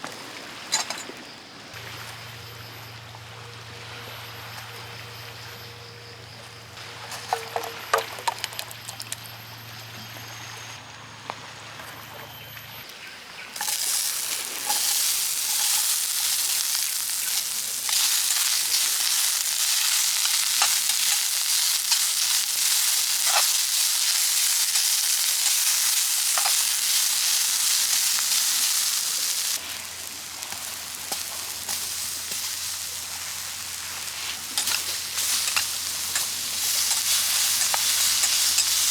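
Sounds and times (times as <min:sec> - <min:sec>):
utensils clinking: 0:00.7 - 0:01.2, 0:13.6 - 0:38.9
food sizzling in hot oil: 0:13.6 - 0:38.9.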